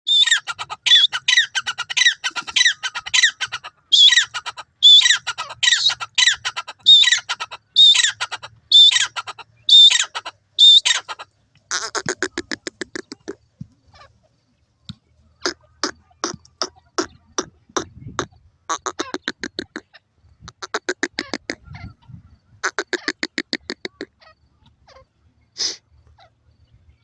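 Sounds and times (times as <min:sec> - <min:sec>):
francolin calling: 0:00.1 - 0:14.2, 0:15.4 - 0:26.4.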